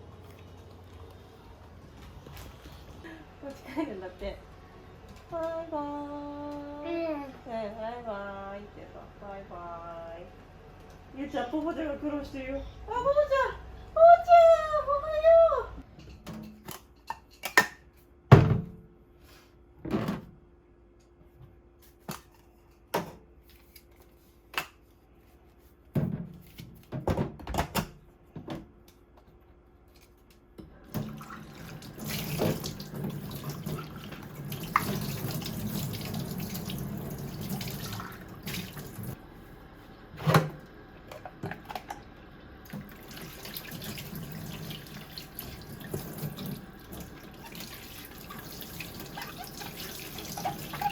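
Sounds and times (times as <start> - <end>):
tap running water into sink: 30.9 - 39.2, 42.7 - 50.9.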